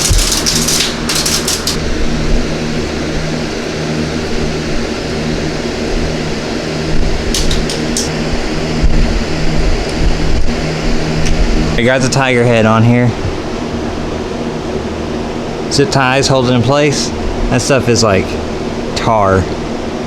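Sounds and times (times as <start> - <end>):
aluminum foil crinkling: 0.0 - 1.8
shop fan humming: 0.0 - 20.0.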